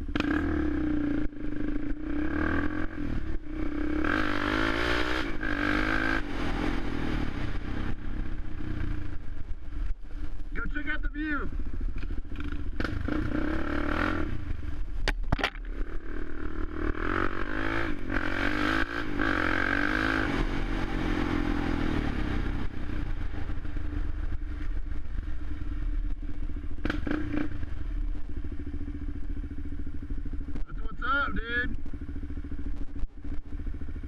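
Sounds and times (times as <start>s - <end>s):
quad bike engine running: 0.0s - 34.0s.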